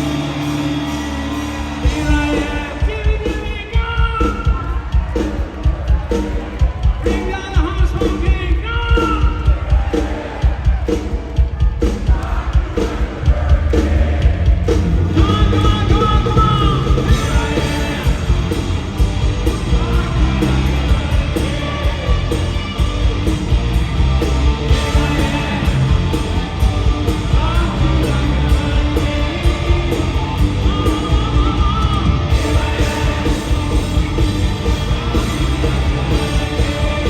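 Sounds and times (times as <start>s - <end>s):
hard rock band playing live: 0.0s - 37.0s
person singing: 15.1s - 18.8s, 24.7s - 37.0s.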